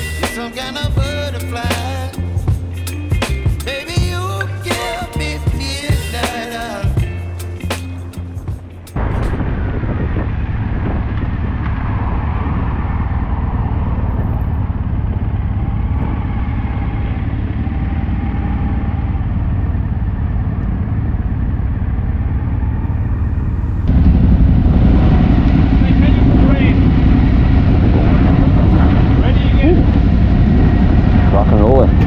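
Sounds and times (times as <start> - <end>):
motorcycle engine running: 0.0 - 32.0
wind rush on microphone: 22.6 - 32.0.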